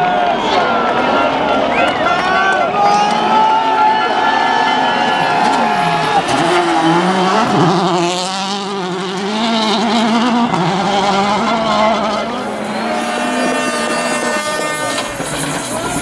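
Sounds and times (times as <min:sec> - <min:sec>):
rally car engine revving: 0:04.7 - 0:16.0.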